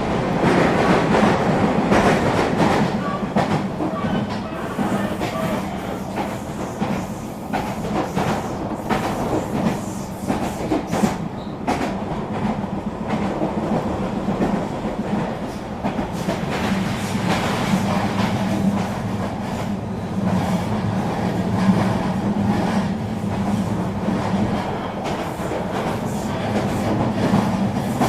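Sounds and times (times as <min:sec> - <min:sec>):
train rolling rumble: 0:00.0 - 0:28.0.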